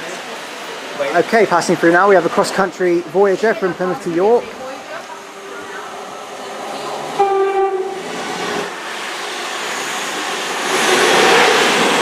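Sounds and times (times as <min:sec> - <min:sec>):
train rushing past: 0:00.1 - 0:12.0
train horn blast: 0:07.2 - 0:08.2.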